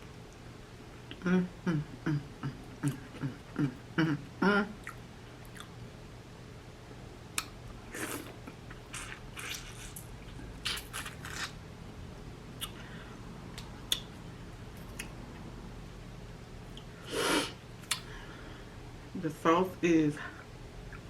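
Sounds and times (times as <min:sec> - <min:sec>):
wet squishing and chewing: 0:04.8 - 0:05.8, 0:07.4 - 0:11.6.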